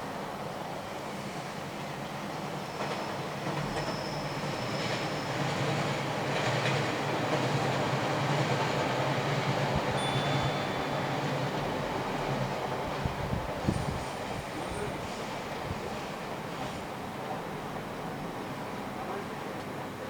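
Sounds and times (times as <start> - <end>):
train running past: 0.0 - 20.0
thin high squeal: 10.0 - 11.4.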